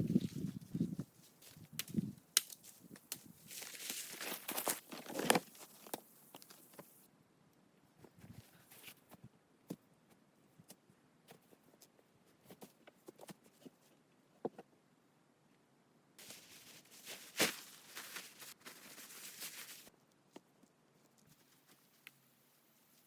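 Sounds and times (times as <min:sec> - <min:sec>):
rustling crunching noise: 0:00.0 - 0:07.0, 0:16.2 - 0:19.9.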